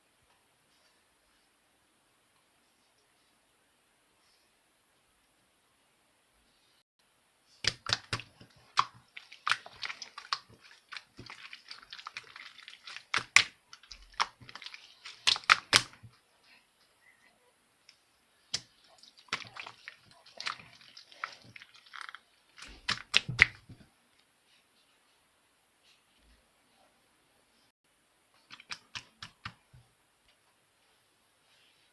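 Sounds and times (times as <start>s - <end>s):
slime squishing by hand: 7.5s - 16.2s, 18.4s - 23.9s.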